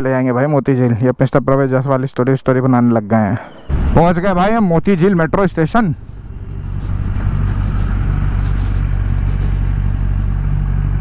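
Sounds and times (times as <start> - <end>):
motorcycle engine running: 6.0 - 11.0.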